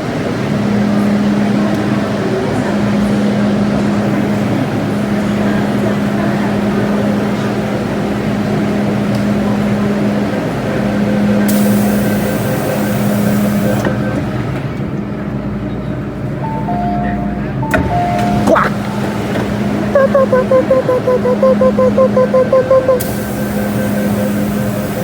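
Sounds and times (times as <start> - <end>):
hiss: 11.5 - 13.8, 23.0 - 25.0.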